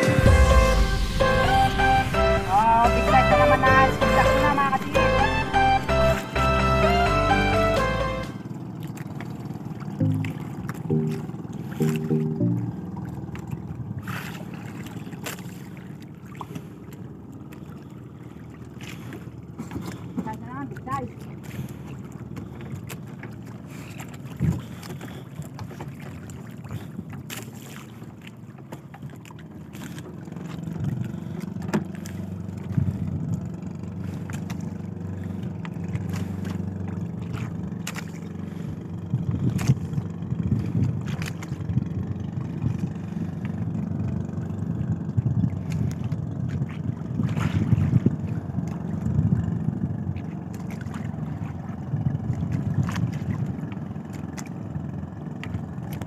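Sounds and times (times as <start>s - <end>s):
boat engine running: 0.0s - 56.0s
wind on microphone: 38.8s - 43.8s, 44.4s - 50.2s.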